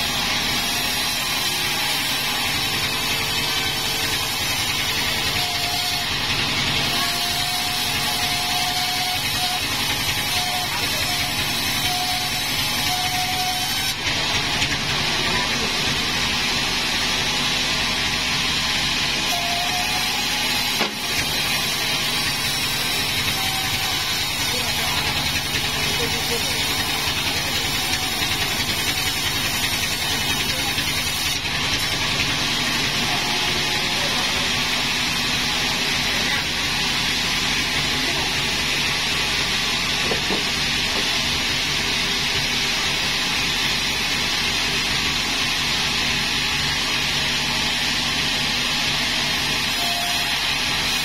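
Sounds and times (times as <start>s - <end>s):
sawmill machinery running: 0.0s - 51.0s
low engine drone: 12.9s - 45.3s.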